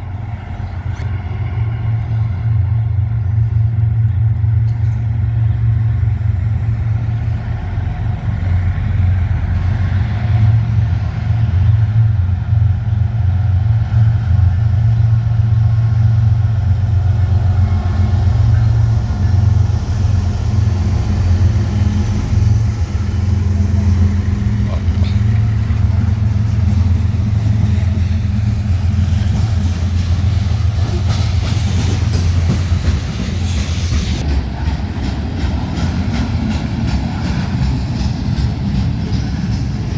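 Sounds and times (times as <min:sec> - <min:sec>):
train rumbling past: 0:00.0 - 0:39.9.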